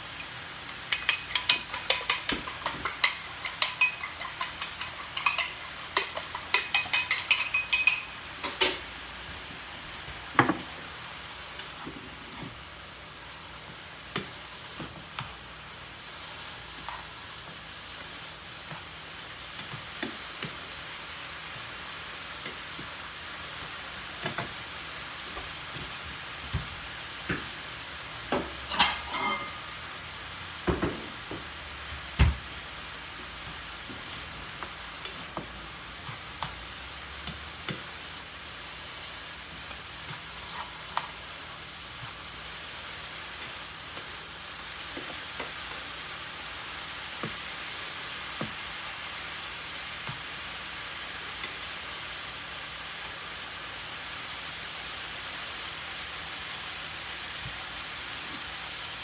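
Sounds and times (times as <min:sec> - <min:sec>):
rice sizzling in a pan: 0:00.0 - 0:59.0
spatula knocking against pan: 0:00.7 - 0:08.7.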